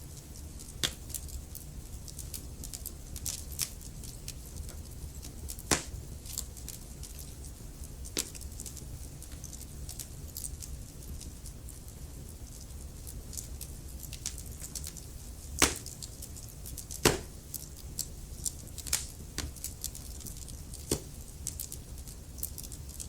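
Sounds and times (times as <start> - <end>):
low steady rumble: 0.0 - 23.0
wood fire crackling: 0.0 - 23.0.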